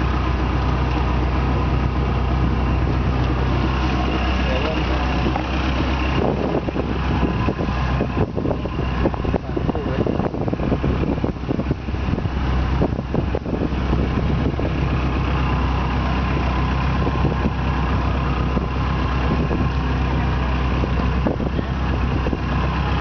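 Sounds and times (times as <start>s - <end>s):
motorboat engine running: 0.0s - 23.0s.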